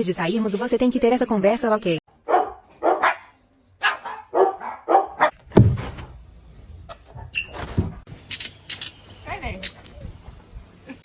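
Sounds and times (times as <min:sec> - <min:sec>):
dog barking: 0:02.2 - 0:05.4
low thump: 0:05.5 - 0:06.2.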